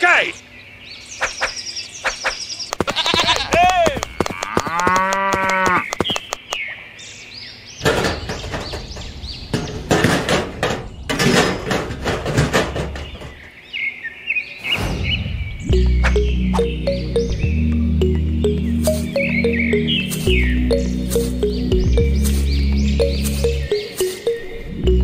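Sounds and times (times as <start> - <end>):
cow mooing: 4.0 - 5.8.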